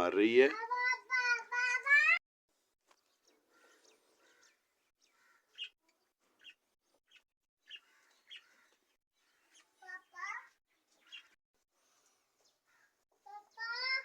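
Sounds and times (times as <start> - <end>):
budgerigar chirping: 5.5 - 5.7, 6.4 - 8.6.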